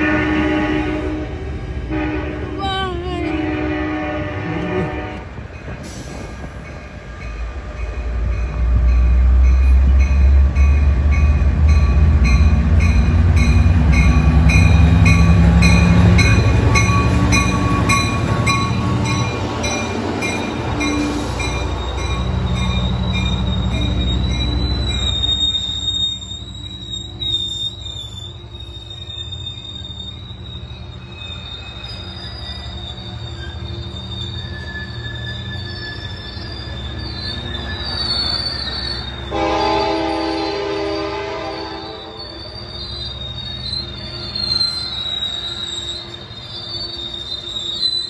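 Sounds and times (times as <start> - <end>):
train horn: 0.0 - 5.4, 39.2 - 42.4
diesel locomotive engine rumble: 0.0 - 48.0
high wheel squeal: 11.7 - 48.0.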